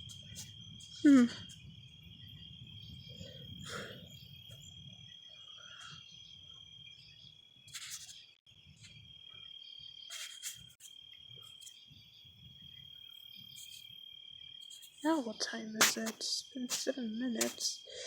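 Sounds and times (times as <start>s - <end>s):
crickets chirring: 0.0s - 18.0s.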